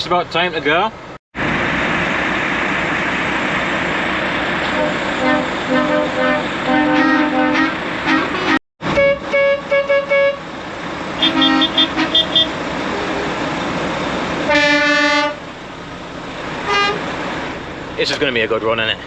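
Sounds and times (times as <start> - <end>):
idling lorries rumbling: 0.0 - 19.0
truck air horn blasts: 4.7 - 10.5, 11.2 - 13.3, 14.5 - 15.4, 16.6 - 17.1.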